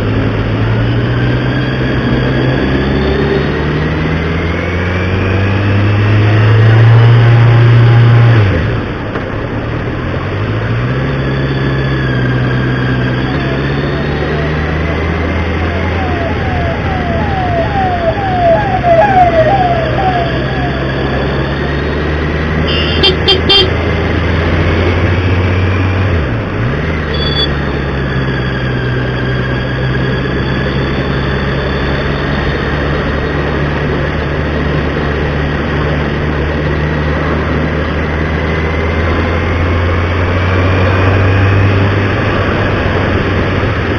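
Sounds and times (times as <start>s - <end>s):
vehicle engine running: 11.7s - 43.9s
quick repeated chirps: 27.1s - 27.5s.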